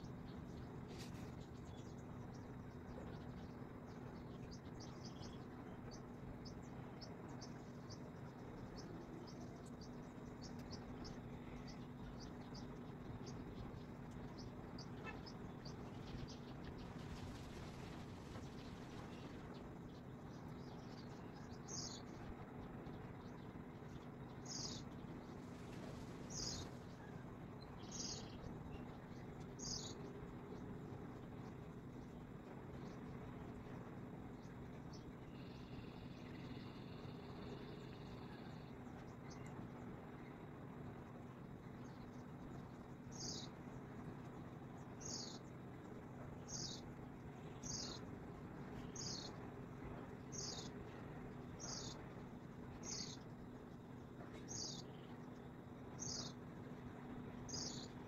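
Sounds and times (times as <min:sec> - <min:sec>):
bird chirping: 0:00.0 - 0:17.5, 0:18.4 - 0:25.3, 0:26.3 - 0:30.7, 0:41.8 - 0:43.7, 0:44.7 - 0:45.5, 0:46.4 - 0:52.2, 0:52.8 - 0:53.3, 0:54.3 - 0:55.2, 0:56.0 - 0:56.4, 0:57.4 - 0:58.0
faint steady hum: 0:00.0 - 0:58.0.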